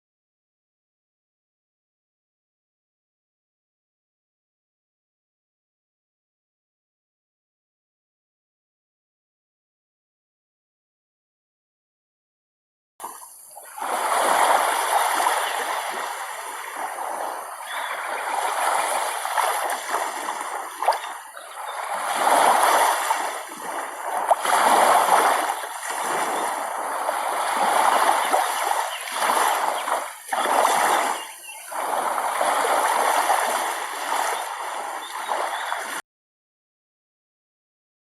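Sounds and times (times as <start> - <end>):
water splashing in surges: 13.0 - 36.0.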